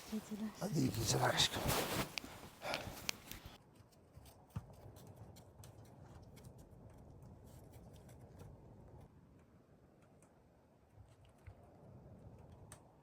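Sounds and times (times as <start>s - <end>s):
faint ticks and clicks: 2.1s - 3.6s.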